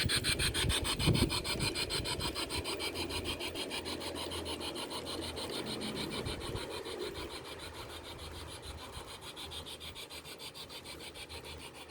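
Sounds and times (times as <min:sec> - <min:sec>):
small train rasping on track: 0:00.0 - 0:11.7.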